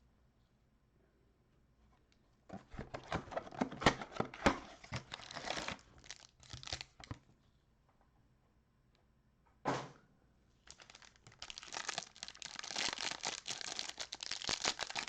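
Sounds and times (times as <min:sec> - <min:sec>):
plastic wrapping tearing and crinkling: 0:04.7 - 0:07.2, 0:10.6 - 0:15.0.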